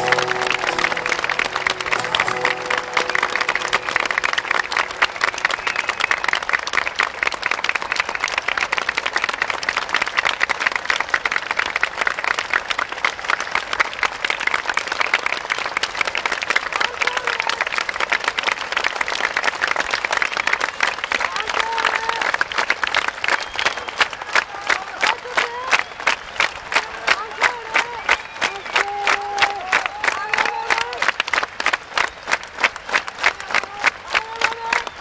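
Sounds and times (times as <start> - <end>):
crowd applauding and cheering: 0.0 - 35.0.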